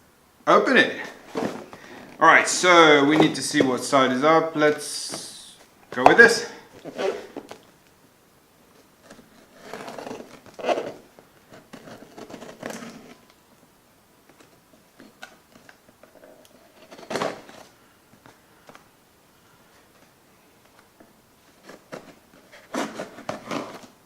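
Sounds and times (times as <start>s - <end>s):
box packaging scraping and tearing: 9.0s - 13.2s, 21.5s - 24.0s.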